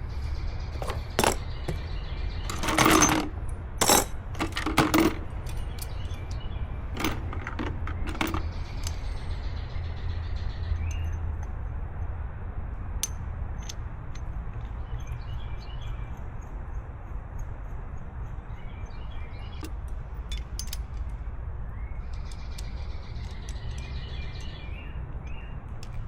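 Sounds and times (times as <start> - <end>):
rattling bursts: 0.8 - 8.9
hard objects clinking and knocking: 0.8 - 9.0.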